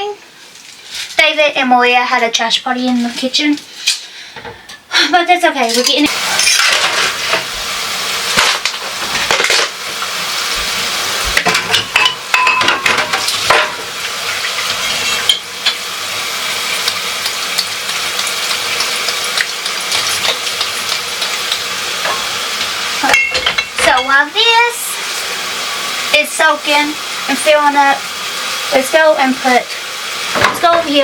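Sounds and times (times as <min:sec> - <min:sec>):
water running from a tap: 0:06.0 - 0:31.0
dishes and cutlery clinking: 0:11.4 - 0:13.8, 0:23.0 - 0:24.2.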